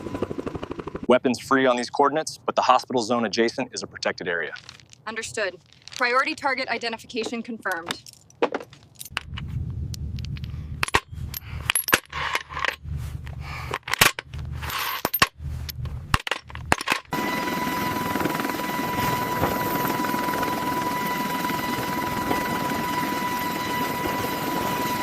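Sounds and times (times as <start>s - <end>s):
helicopter running with whine: 0.0s - 1.1s, 17.1s - 25.0s.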